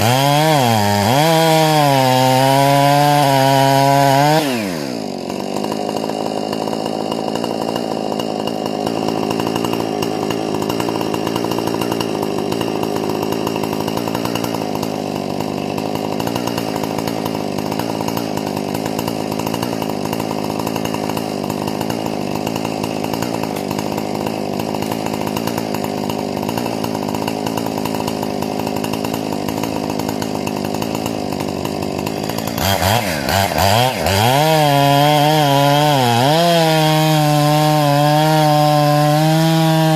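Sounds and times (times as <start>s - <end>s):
chainsaw running and revving: 0.0s - 39.9s.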